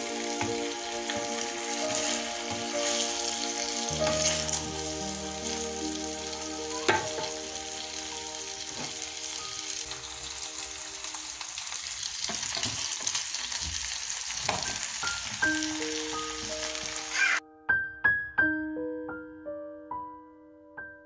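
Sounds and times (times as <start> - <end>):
food sizzling in oil: 0.0 - 17.4
wooden spatula stirring: 0.4 - 5.6.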